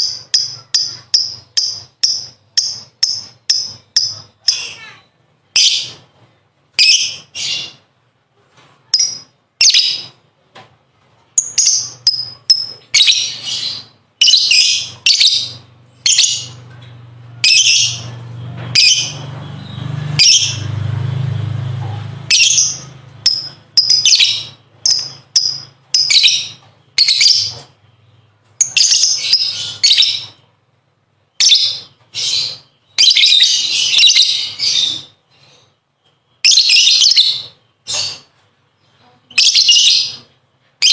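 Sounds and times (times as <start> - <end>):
lovebird chattering: 0.0 - 5.0, 11.4 - 16.6, 21.9 - 27.7, 39.3 - 40.9.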